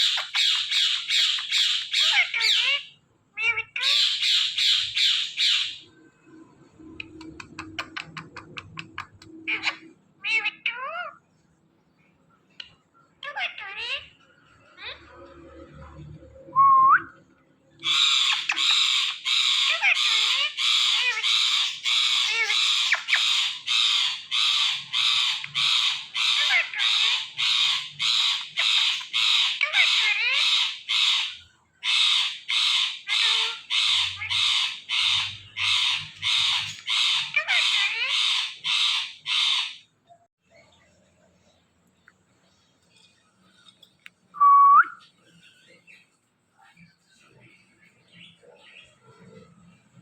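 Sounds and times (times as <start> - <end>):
parakeet squawking: 0.0 - 6.0, 6.9 - 11.3, 12.6 - 15.6, 17.8 - 39.9.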